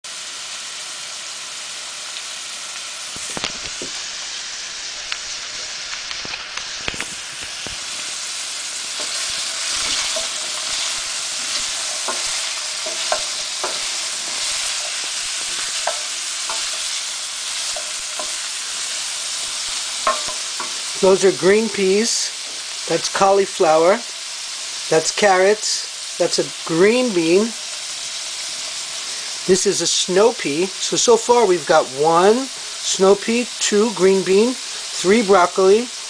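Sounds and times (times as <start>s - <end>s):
vegetables sizzling in a pan: 0.0s - 36.0s
wooden spoon knocking on pan: 11.5s - 13.9s, 20.0s - 20.8s.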